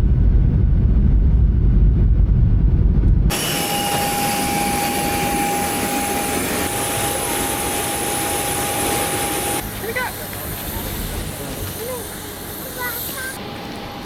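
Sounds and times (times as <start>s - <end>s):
constant whine: 0.0s - 14.0s
jet airliner rumble: 0.0s - 14.0s
steady hiss: 3.3s - 13.8s.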